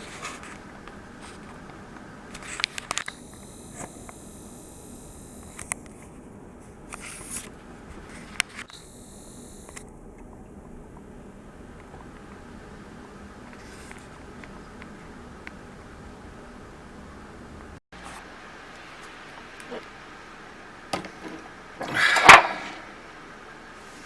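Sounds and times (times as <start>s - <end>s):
high-pitched whine: 0.0s - 14.2s.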